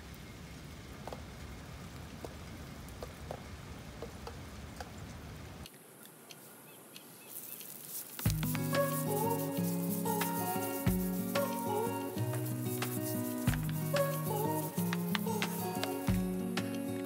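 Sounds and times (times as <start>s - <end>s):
garden hose water hiss: 0.0s - 17.0s
rain on concrete rooftop: 0.0s - 17.0s
deck brush scrubbing concrete: 7.3s - 16.7s.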